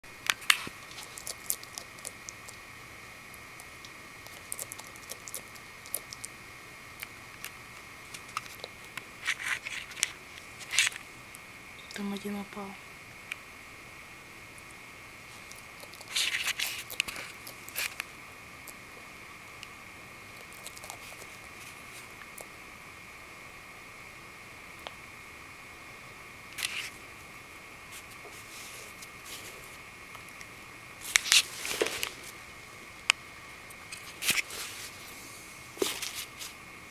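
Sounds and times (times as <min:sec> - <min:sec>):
faint chewing clicks: 0:00.2 - 0:02.7, 0:03.3 - 0:06.4, 0:07.0 - 0:12.0, 0:15.4 - 0:18.8, 0:19.6 - 0:22.6
lizard crunching mealworms: 0:00.2 - 0:12.1, 0:14.5 - 0:18.8, 0:20.3 - 0:22.6, 0:26.6 - 0:27.1, 0:27.9 - 0:36.6.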